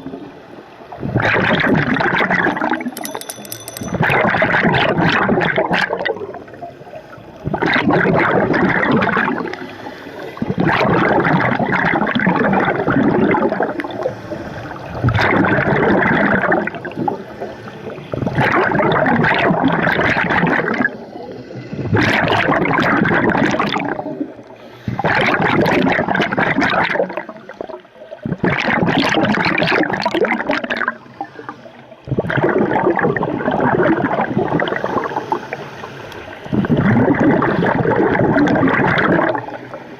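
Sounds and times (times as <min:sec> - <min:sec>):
exhaled bubbles rushing: 0:00.0 - 0:03.0, 0:04.0 - 0:39.9.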